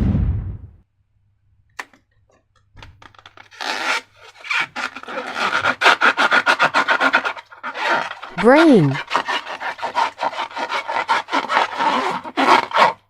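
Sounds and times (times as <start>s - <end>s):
rubbing and scraping strokes: 3.1s - 13.0s.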